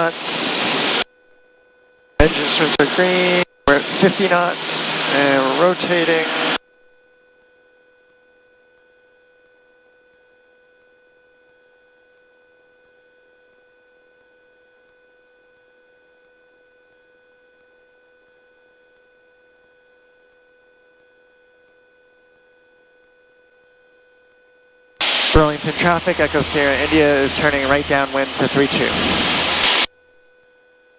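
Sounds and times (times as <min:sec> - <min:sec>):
faint electrical whine: 0:02.2 - 0:06.6, 0:25.0 - 0:29.9
low hiss: 0:25.0 - 0:29.9.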